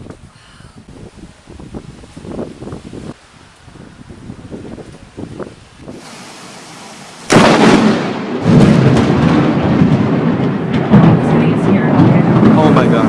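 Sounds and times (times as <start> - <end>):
rolling thunder rumble: 3.7 - 13.0
thunderclap crack: 4.6 - 13.0.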